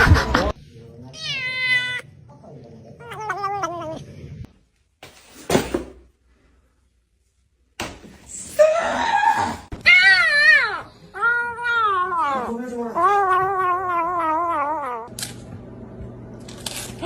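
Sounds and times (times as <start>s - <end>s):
cat yowls: 1.2s - 2.0s, 8.9s - 15.1s.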